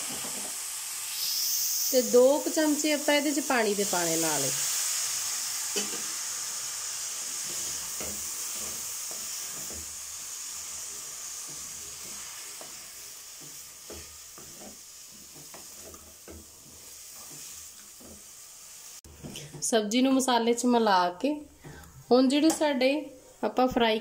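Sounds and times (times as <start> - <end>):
vegetables sizzling in a pan: 0.0 - 24.0
spatula knocking and scraping pan: 7.4 - 10.0, 11.4 - 18.3.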